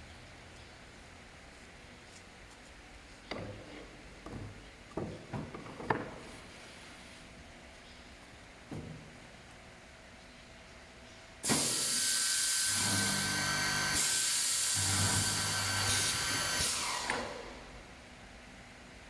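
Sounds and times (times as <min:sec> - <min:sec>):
boring machine running: 0:11.4 - 0:17.6.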